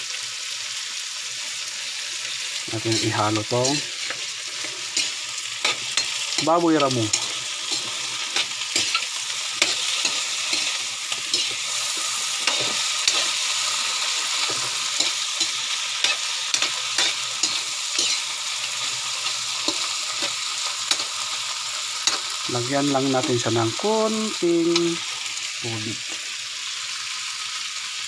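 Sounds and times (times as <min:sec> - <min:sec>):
meat sizzling in a wok: 0:00.0 - 0:28.0
spatula scraping a pan: 0:02.8 - 0:21.3.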